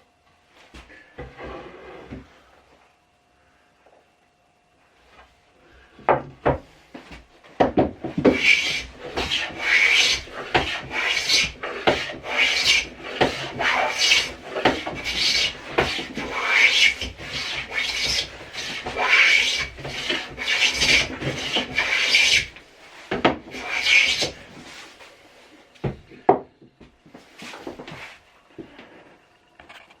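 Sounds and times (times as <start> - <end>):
blade rasping on a whetstone: 8.2 - 22.6, 23.5 - 24.6.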